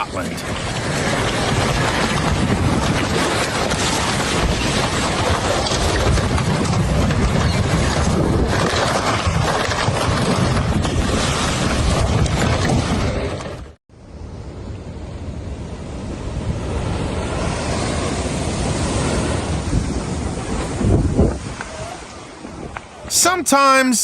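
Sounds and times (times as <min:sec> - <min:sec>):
wind buffeting microphone: 0:00.5 - 0:13.5, 0:18.4 - 0:22.8.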